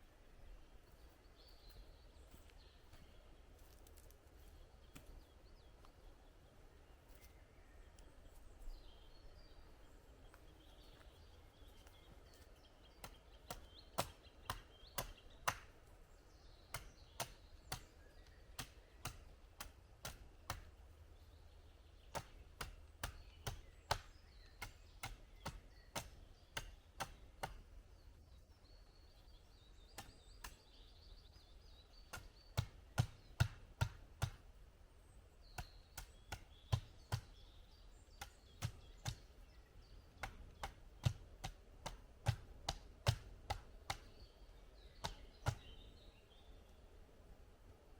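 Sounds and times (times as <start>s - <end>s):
faint birdsong: 0.0s - 47.9s
wood being chopped: 13.0s - 15.8s, 16.7s - 17.9s, 18.5s - 20.8s, 22.0s - 27.7s, 32.0s - 34.5s, 35.5s - 37.5s, 38.1s - 39.4s, 40.1s - 44.3s, 44.9s - 45.8s.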